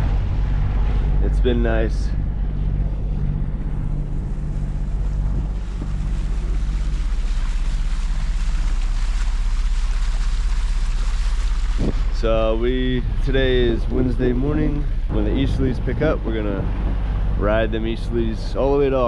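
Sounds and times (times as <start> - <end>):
boat engine humming: 0.0 - 19.0
water rushing past hull: 0.0 - 19.0
wind on microphone: 11.2 - 18.4.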